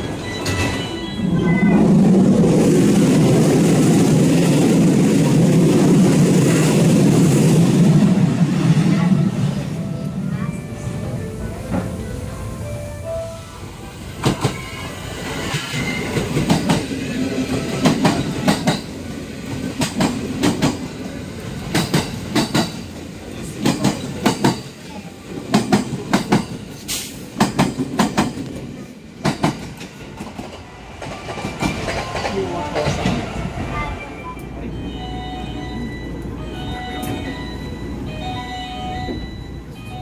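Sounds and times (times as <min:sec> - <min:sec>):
low train rumble: 0:00.0 - 0:40.0
train wheels clacking: 0:14.2 - 0:24.8, 0:25.4 - 0:28.6, 0:29.2 - 0:33.7.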